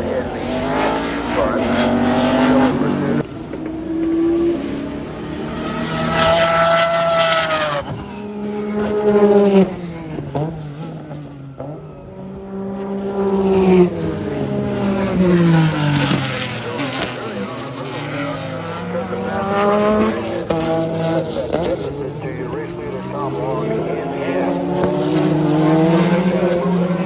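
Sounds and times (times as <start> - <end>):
race cars passing at speed: 0.0 - 27.0.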